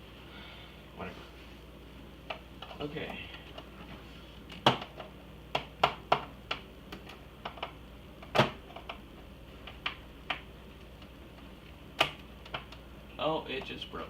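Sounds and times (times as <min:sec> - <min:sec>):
hard plastic cracking: 0:04.4 - 0:09.0, 0:09.6 - 0:12.9.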